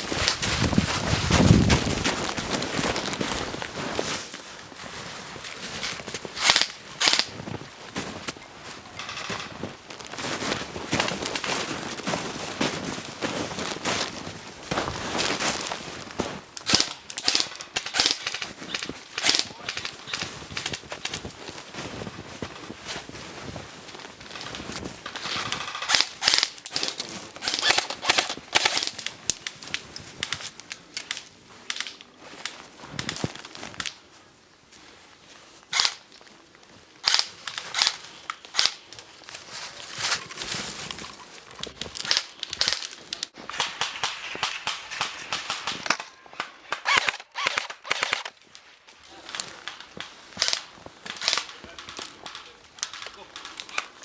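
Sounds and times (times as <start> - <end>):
airsoft guns firing sharp snaps: 6.4 - 7.3, 16.6 - 21.2, 25.1 - 33.2, 35.7 - 36.0, 37.0 - 39.0, 41.9 - 48.4, 49.3 - 53.9.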